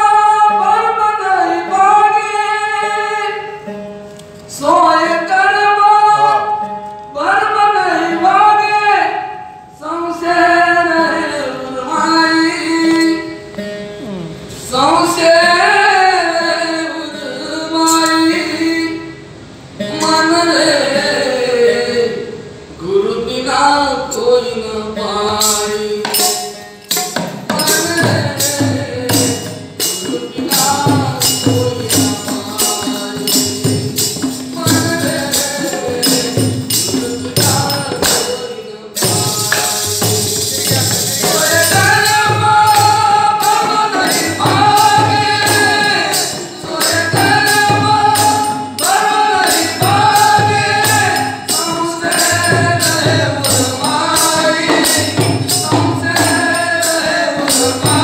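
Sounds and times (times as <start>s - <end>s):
cymbals crashing: 25.4s - 58.0s
percussion beat with jingles: 25.4s - 58.0s
voices singing in chorus: 27.5s - 58.0s.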